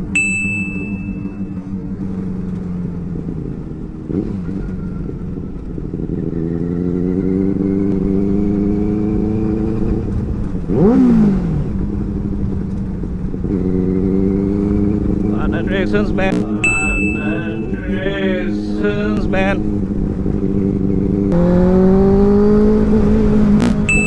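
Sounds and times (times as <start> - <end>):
throttle blip: 0.0 - 1.7, 15.5 - 19.6, 23.5 - 24.0
motorcycle engine running: 0.0 - 24.0.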